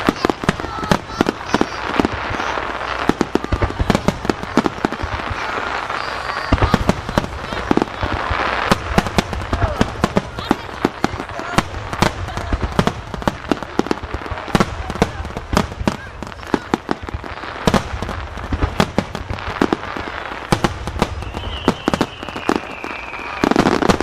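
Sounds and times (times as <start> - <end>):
firework booms and cracks: 0.0 - 24.0
faint high whistle: 21.1 - 23.6.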